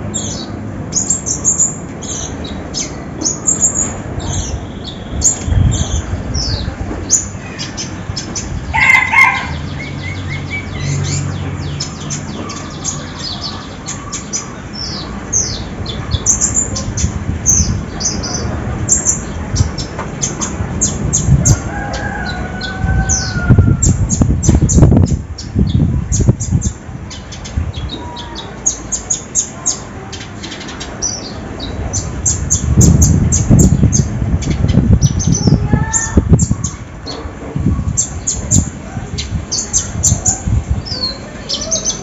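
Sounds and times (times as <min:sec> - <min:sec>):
low rumbling noise: 0:00.0 - 0:42.0
songbird chirps and trills: 0:00.0 - 0:42.0
rooster crowing: 0:08.7 - 0:09.7, 0:21.5 - 0:23.9.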